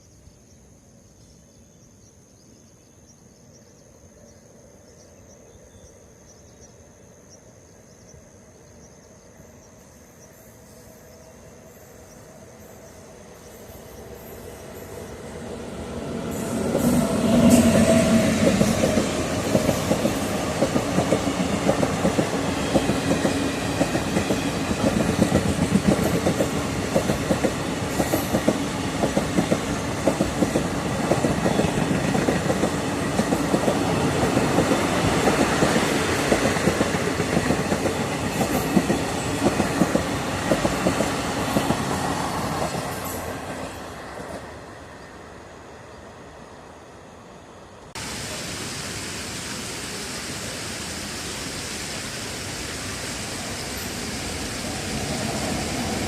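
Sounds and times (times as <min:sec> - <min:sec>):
train locomotive passing: 0:10.3 - 0:56.0
clickety-clack of train wheels: 0:16.4 - 0:44.5.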